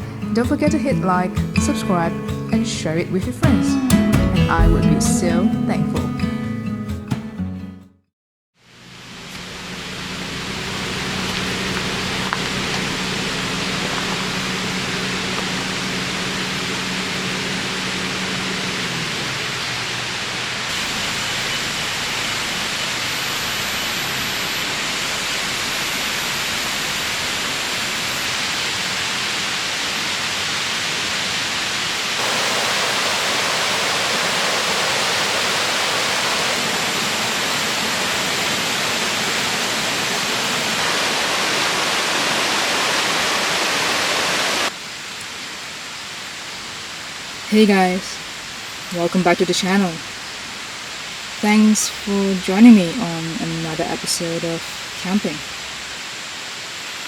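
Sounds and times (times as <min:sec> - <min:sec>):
low musical tone: 0:00.3 - 0:06.4
river water rushing over rocks: 0:09.4 - 0:51.7.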